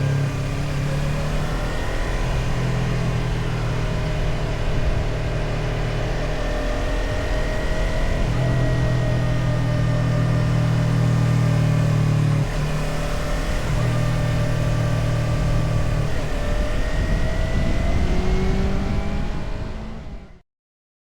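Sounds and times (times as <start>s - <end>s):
motorcycle engine running: 0.0s - 20.1s
wind rush: 16.4s - 20.0s.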